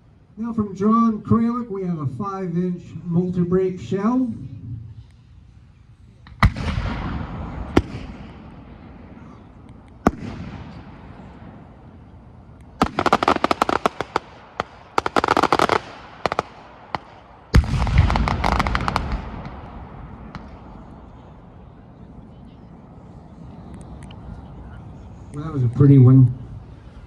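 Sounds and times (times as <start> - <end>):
rapid crackling firework pops: 6.2 - 8.5, 9.8 - 10.8, 12.6 - 20.7
heavy firework boom with echo: 6.4 - 9.2, 17.5 - 21.1.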